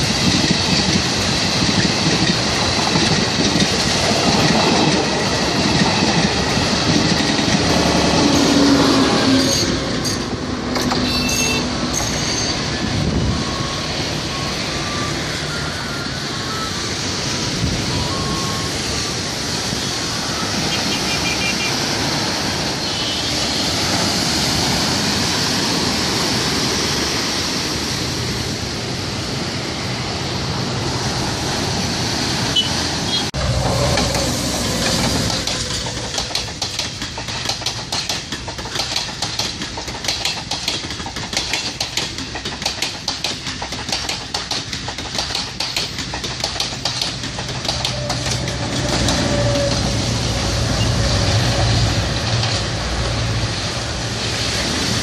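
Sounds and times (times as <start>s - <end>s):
train wheels clattering: 0.0s - 15.0s, 33.4s - 55.0s
train engine humming: 0.0s - 55.0s
wind: 0.0s - 55.0s
sea surf: 11.7s - 38.3s, 46.7s - 55.0s.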